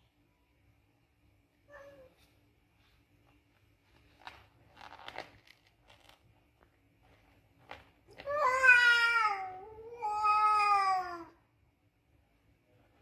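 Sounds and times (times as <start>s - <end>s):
cat yowling: 8.3s - 11.4s.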